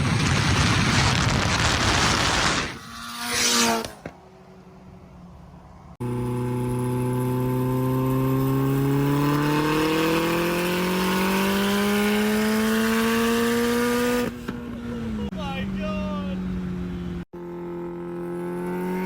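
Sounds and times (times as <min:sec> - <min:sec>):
turbocharged car engine accelerating: 0:06.0 - 0:14.8.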